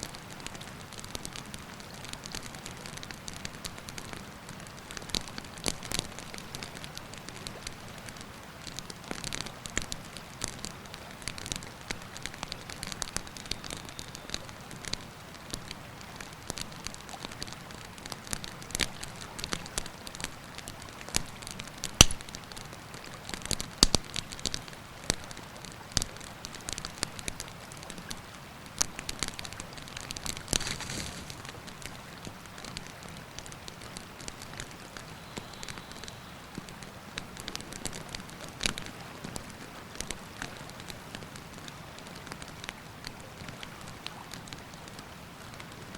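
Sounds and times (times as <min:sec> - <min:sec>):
campfire crackling and popping: 0:00.1 - 0:45.9.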